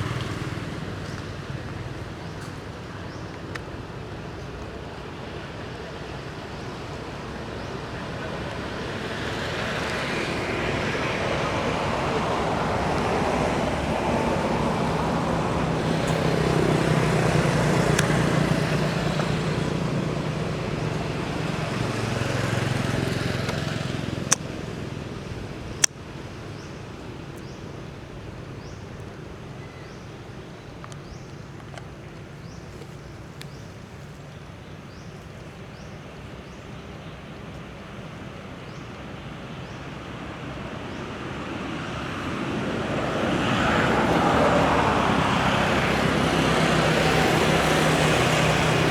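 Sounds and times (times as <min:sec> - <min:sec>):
vehicle passing: 0:00.0 - 0:02.8, 0:07.1 - 0:25.8, 0:41.6 - 0:48.9
vehicle approaching: 0:00.0 - 0:06.0, 0:06.6 - 0:25.9, 0:41.2 - 0:48.9.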